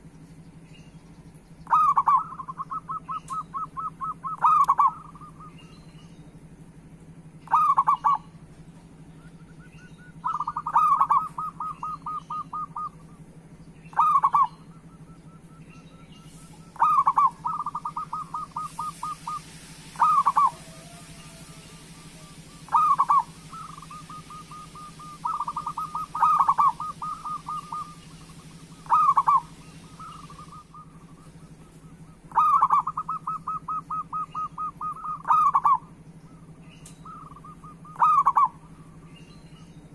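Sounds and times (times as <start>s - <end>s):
steady low hum: 0.0s - 39.9s
dove cooing: 1.6s - 5.7s, 7.4s - 39.0s
hiss: 17.5s - 30.8s.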